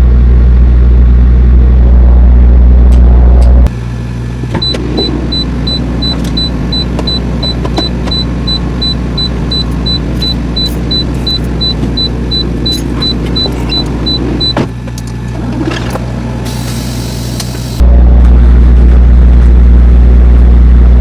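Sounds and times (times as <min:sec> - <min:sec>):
diesel truck engine running: 0:00.0 - 0:21.0
rapid high-pitched reversing beeps: 0:04.6 - 0:14.6.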